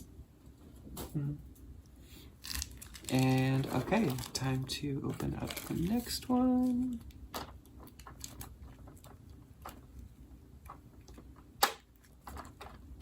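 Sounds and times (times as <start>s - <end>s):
bag being opened: 2.4s - 9.2s.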